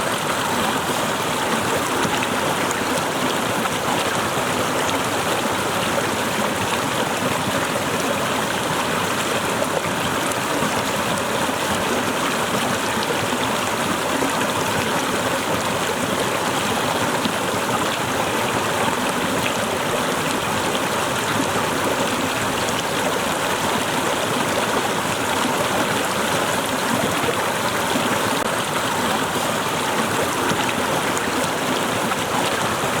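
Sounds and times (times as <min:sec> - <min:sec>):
small waterfall splashing: 0:00.0 - 0:33.0.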